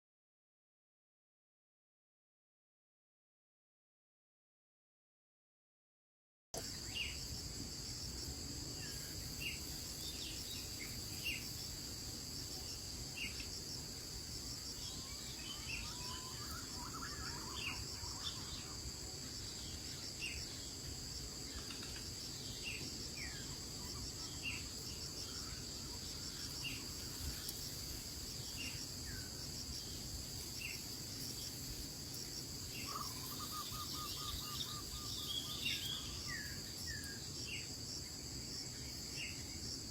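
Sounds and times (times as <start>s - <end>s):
insect chorus: 6.6s - 39.9s
bird chirps: 14.8s - 18.8s, 32.8s - 37.2s.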